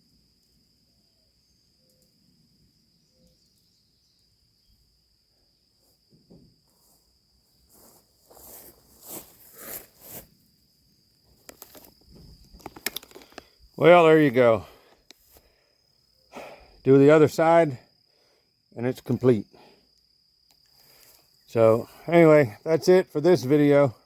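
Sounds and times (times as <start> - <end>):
crickets chirping: 0.0 - 24.0
handling scraping noises: 7.7 - 10.4, 11.4 - 13.5.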